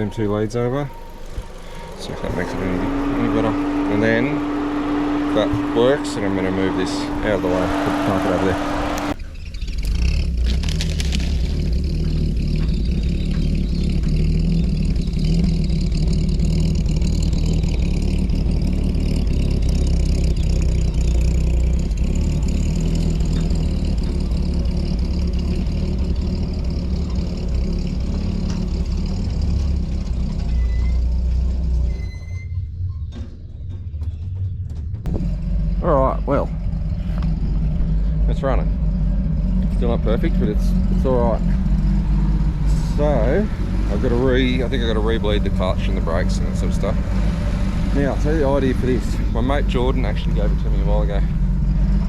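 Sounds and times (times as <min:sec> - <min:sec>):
straight-six engine idling: 0:00.0 - 0:09.2, 0:35.1 - 0:52.0.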